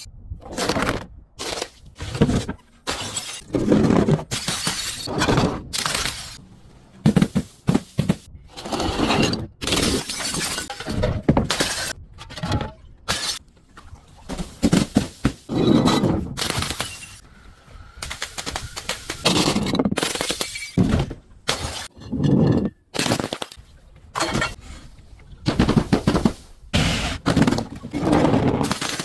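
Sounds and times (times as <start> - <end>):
glass breaking and crunching: 4.3 - 6.4, 9.6 - 11.9, 28.6 - 29.0.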